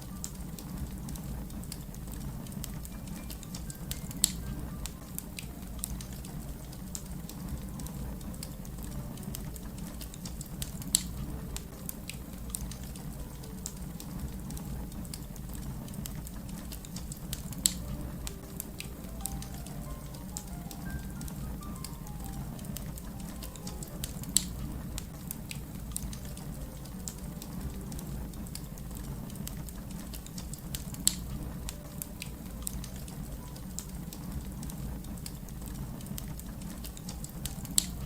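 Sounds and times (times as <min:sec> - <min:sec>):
wood fire crackling: 0:00.0 - 0:38.0
loud fire pops: 0:09.6 - 0:13.1.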